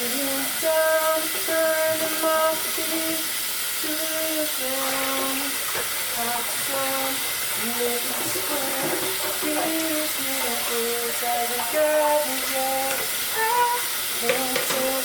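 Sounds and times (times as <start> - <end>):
constant hiss: 0.0 - 15.0
person singing slow tune: 0.0 - 15.0.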